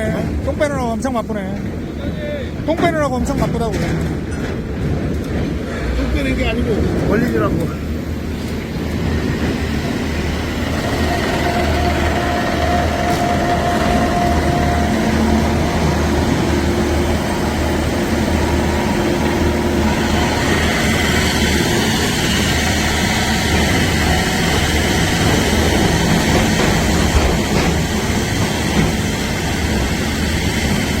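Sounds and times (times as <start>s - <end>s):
drilling rig low drone: 7.9s - 30.8s.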